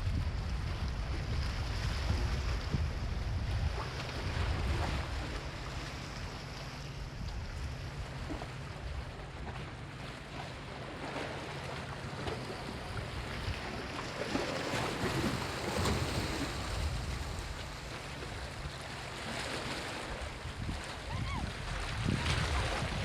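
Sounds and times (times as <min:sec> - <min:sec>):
small waves breaking on beach: 0:09.6 - 0:23.0.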